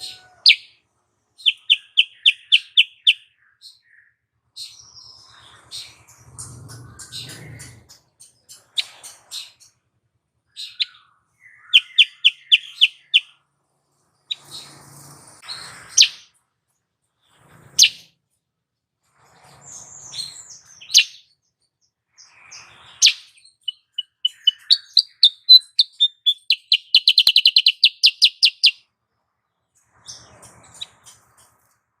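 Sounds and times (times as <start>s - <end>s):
bulbul chirping: 1.4s - 3.3s, 10.6s - 13.3s, 15.9s - 16.3s, 23.0s - 28.8s.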